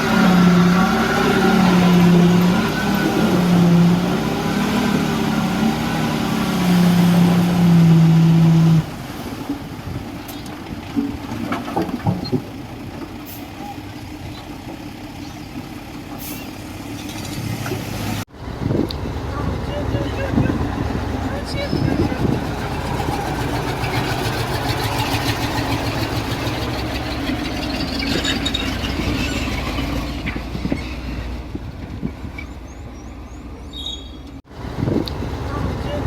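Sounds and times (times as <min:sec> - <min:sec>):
heavy diesel engine running: 0:18.4 - 0:30.2.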